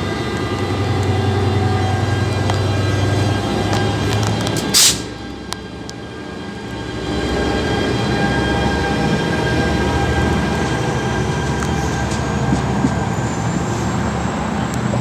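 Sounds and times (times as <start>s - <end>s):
train rumbling with whine: 0.0s - 15.0s.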